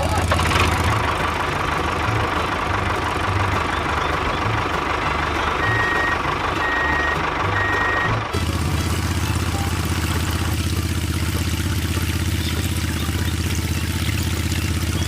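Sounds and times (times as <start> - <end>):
vehicle engine running: 0.0 - 15.0
reversing alarm beeping: 5.5 - 8.2.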